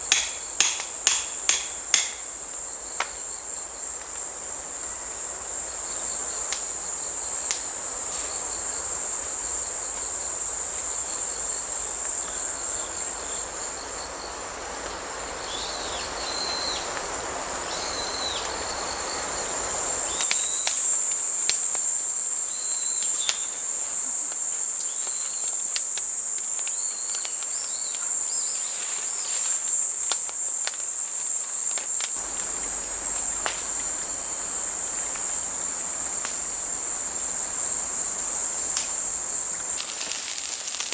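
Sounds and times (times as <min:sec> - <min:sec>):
crickets chirping: 0:00.0 - 0:40.9
creek water running: 0:28.8 - 0:40.9.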